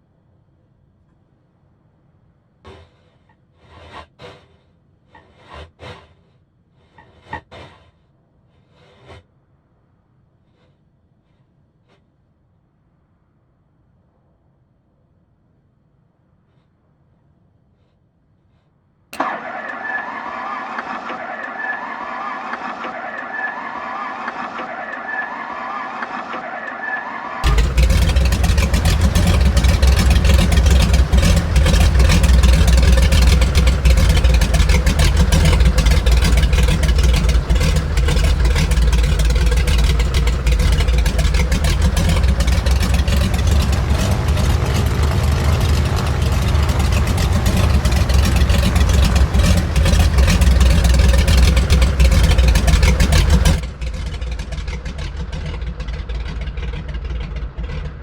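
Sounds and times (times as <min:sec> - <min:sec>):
radial aircraft engines running: 0:19.2 - 0:58.0.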